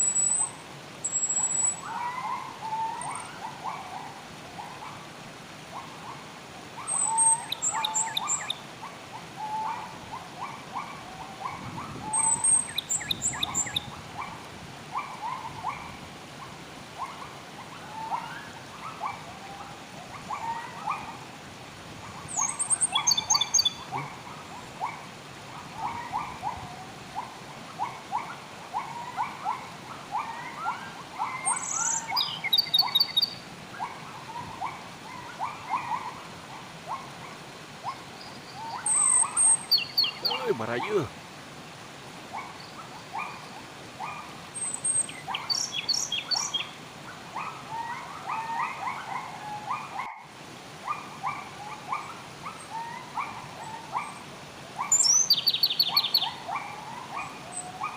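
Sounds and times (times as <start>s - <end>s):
wild birds chattering: 6.8s - 21.2s, 22.0s - 41.2s, 42.3s - 50.1s, 54.8s - 57.9s
high quick bird song phrase: 39.8s - 41.1s.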